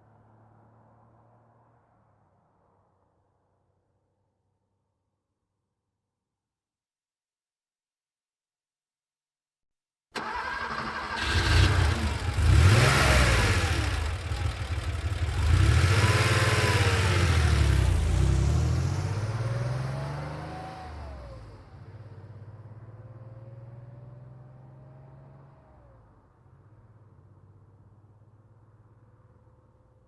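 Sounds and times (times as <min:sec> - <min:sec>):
car pulling away: 0:10.2 - 0:25.8
car engine starting and revving: 0:10.2 - 0:26.0.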